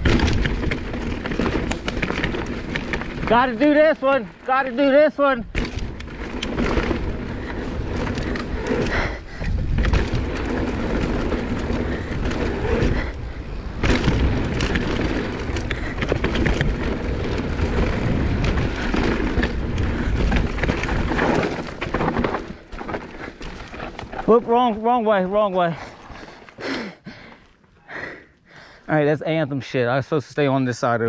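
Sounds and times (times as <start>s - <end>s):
bike rattling: 0.0s - 27.3s
bike tyres on dirt and rocks: 0.0s - 29.8s
wind on microphone: 6.9s - 21.2s.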